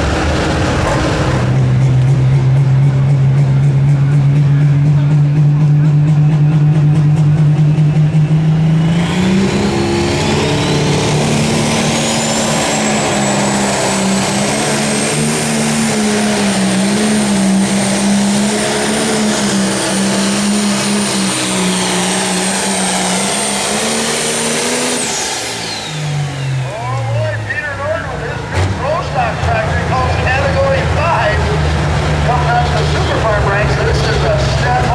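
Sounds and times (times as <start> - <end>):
diesel engine running hard: 0.0 - 34.9
turbo whine: 7.4 - 28.2.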